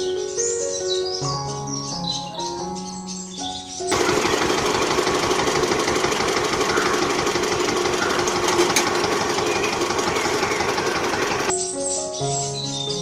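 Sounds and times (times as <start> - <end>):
small motor buzzing rattle: 3.9 - 11.5.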